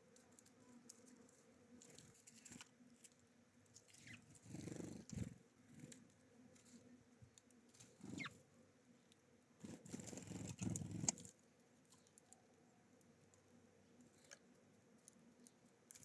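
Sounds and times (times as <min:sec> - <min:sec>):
wings rustling and fluttering: 0:00.0 - 0:08.5, 0:09.6 - 0:12.4
birds pecking at seed: 0:00.0 - 0:16.0.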